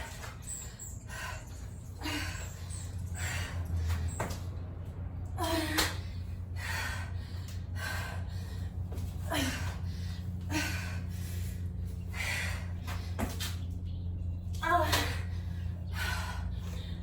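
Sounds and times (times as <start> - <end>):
steady low hum: 0.0 - 17.0
woman gasping breaths: 1.0 - 3.7, 6.5 - 12.8.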